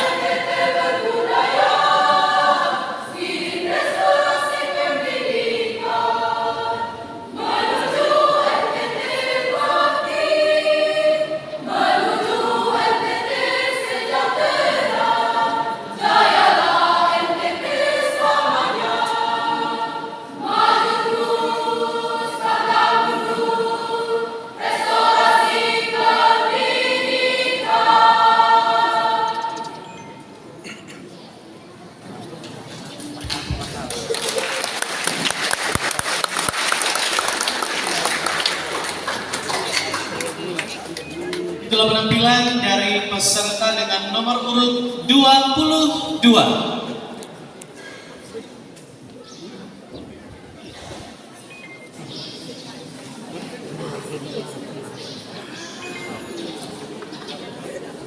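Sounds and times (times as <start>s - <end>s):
choir singing: 0.0s - 30.4s.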